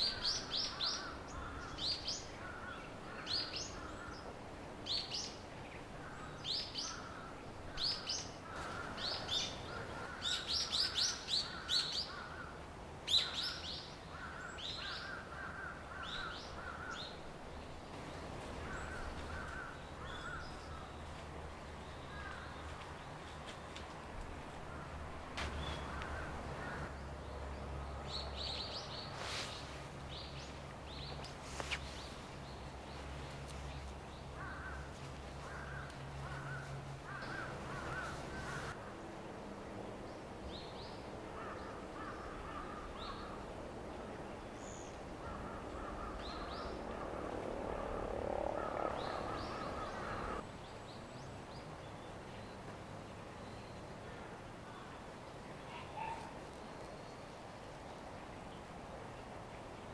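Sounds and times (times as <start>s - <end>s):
crows cawing: 0.7s - 1.8s, 2.4s - 4.2s, 8.4s - 10.4s, 14.1s - 17.0s, 18.6s - 20.4s, 25.8s - 26.9s, 34.4s - 38.8s, 41.4s - 43.4s, 45.2s - 46.7s, 48.6s - 50.4s.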